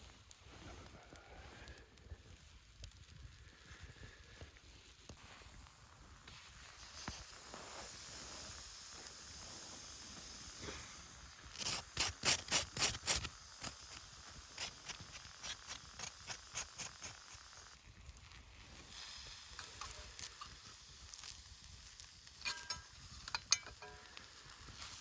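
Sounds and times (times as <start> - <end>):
food sizzling in a frying pan: 5.1 - 25.0
sharp strokes: 11.5 - 17.7.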